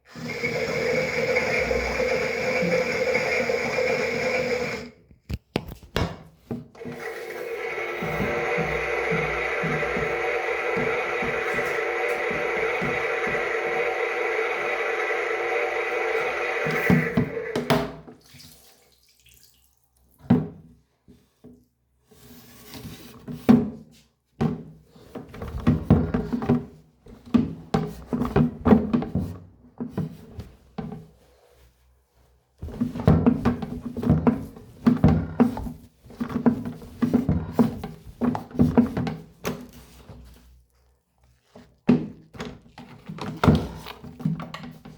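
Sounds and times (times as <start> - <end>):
water sloshing in toy washer: 6.8 - 20.3, 32.8 - 44.9.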